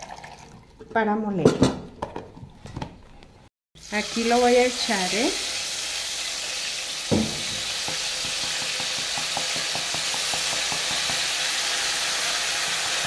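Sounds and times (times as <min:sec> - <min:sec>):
sauce sizzling in hot oil: 0:03.8 - 0:13.0.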